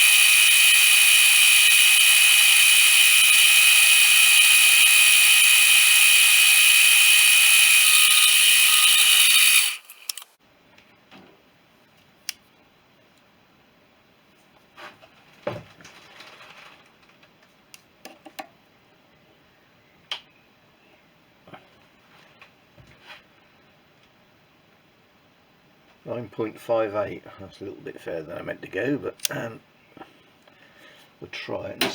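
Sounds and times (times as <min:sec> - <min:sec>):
metal lathe cutting steel: 0:00.0 - 0:10.4.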